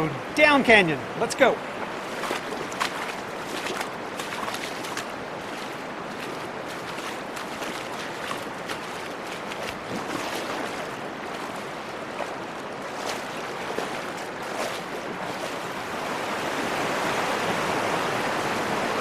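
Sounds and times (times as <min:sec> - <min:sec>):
river water rushing: 0:00.0 - 0:19.0
feet wading through water: 0:01.6 - 0:16.3.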